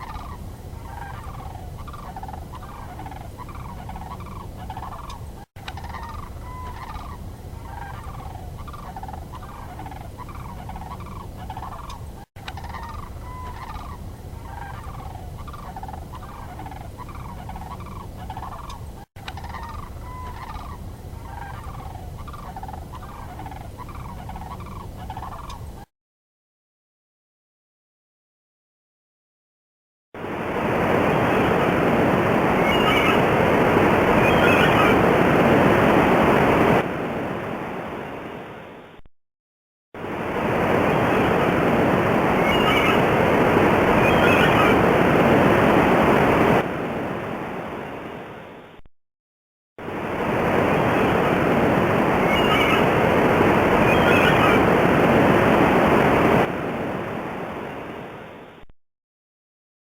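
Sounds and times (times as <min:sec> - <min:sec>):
faint bird calls: 0:00.0 - 0:25.8, 0:32.5 - 0:35.7, 0:42.2 - 0:45.5, 0:52.0 - 0:55.4.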